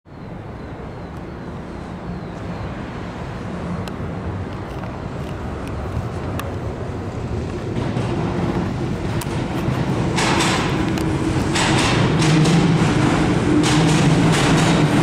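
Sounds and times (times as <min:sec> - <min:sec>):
train rumbling on bridge: 0:00.1 - 0:15.0.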